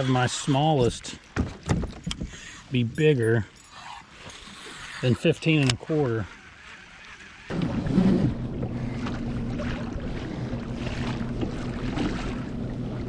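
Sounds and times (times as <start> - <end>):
water noise: 0.0 - 13.0
boat motor humming: 3.7 - 13.0.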